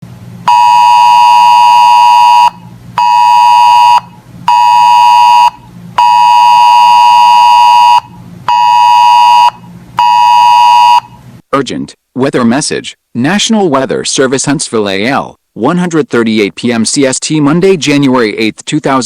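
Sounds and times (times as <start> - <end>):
electronic alert tone buzz: 0.5 - 11.2.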